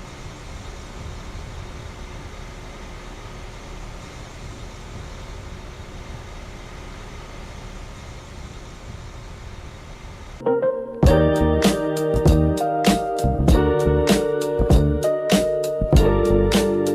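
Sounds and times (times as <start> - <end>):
air conditioner units whirring: 0.0 - 16.9
music: 10.4 - 16.9.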